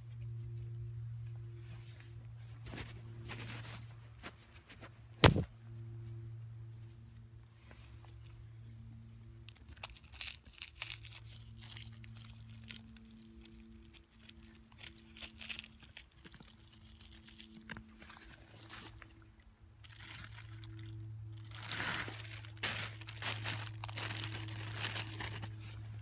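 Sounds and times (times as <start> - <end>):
low hum: 0.0 - 26.0
crinkling and crunching rustles: 1.6 - 5.5, 9.4 - 26.0.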